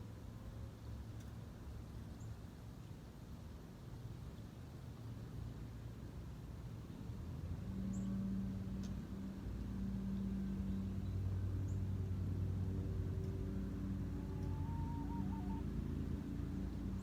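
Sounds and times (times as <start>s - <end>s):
vehicle engine drone: 6.7s - 17.0s.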